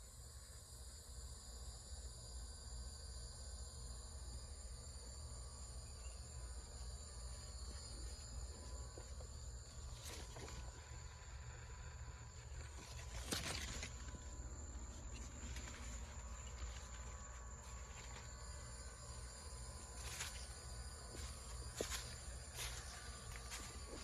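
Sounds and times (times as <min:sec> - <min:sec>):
crickets trilling: 0:00.0 - 0:24.0
brief rustle: 0:12.5 - 0:18.3.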